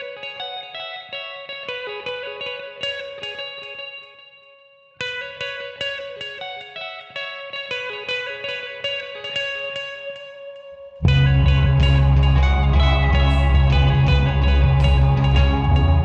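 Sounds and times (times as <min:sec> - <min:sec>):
electric guitar picking notes: 0:00.0 - 0:16.0.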